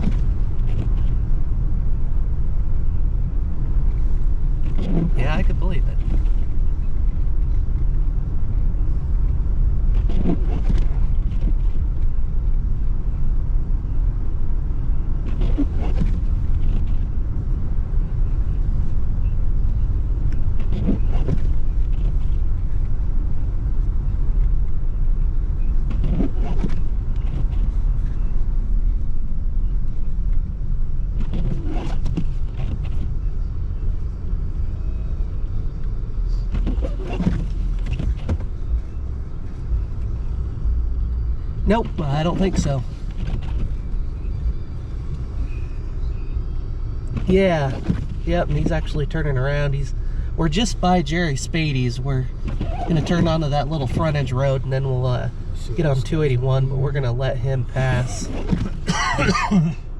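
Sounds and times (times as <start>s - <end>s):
car engine and tyre rumble: 0.0s - 59.9s
windshield wiper swish: 9.8s - 12.0s, 15.2s - 17.6s, 20.4s - 22.9s, 25.8s - 28.0s, 31.1s - 33.2s, 36.4s - 40.2s, 41.6s - 45.6s, 47.1s - 49.1s, 52.3s - 54.7s, 57.8s - 59.7s.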